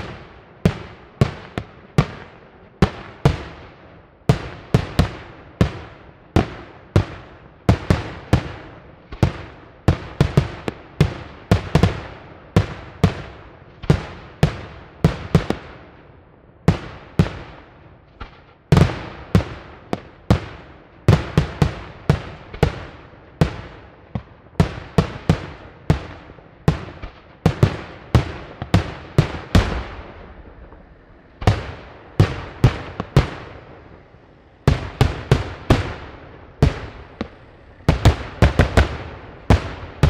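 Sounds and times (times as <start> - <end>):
fireworks shells bursting: 28.5 - 40.0.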